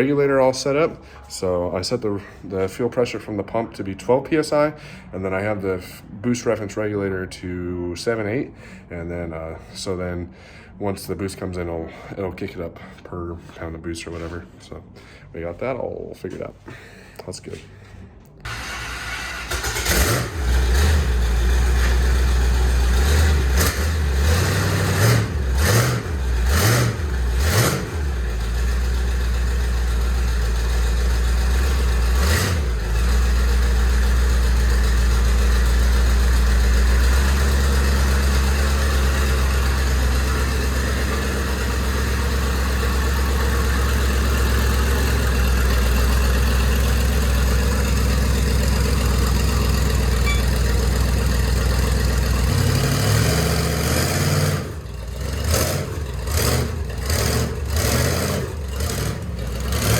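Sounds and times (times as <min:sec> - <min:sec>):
engine idling: 0:18.5 - 0:59.9
engine throttle blips: 0:18.5 - 0:59.9.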